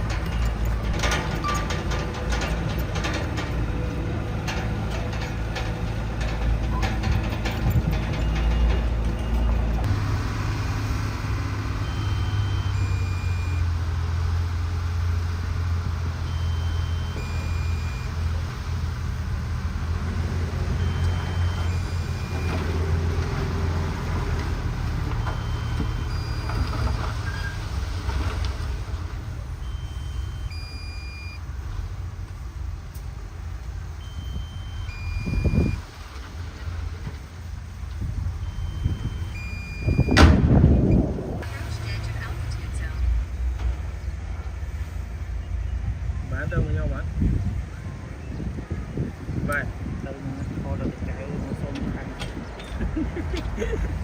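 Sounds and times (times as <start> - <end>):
diesel engine running: 0.0 - 54.0
reversing alarm beeps: 8.2 - 9.8, 11.8 - 13.7, 16.2 - 18.2, 20.7 - 22.7, 25.2 - 27.6, 29.6 - 31.4, 34.0 - 35.8, 38.4 - 40.2.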